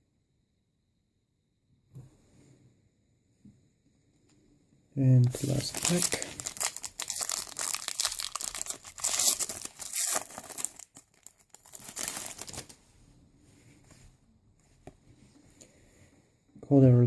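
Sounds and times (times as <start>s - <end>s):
wrapper tearing and crinkling: 5.2s - 12.8s.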